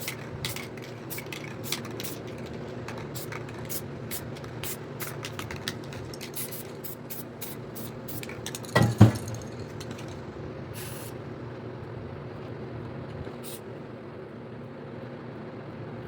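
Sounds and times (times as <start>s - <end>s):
spray can hissing: 0.0s - 10.2s, 10.8s - 11.2s.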